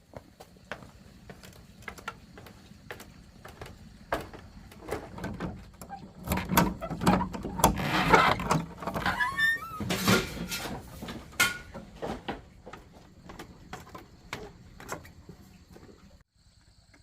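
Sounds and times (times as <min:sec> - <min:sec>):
knocks and clatter: 0:01.4 - 0:15.4.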